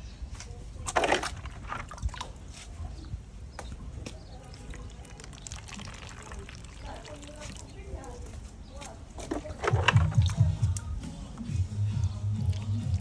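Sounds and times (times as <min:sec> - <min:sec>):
water splashing and trickling: 0:00.7 - 0:10.9, 0:11.8 - 0:13.0
water dripping: 0:03.6 - 0:08.4, 0:09.2 - 0:10.9, 0:12.0 - 0:13.0.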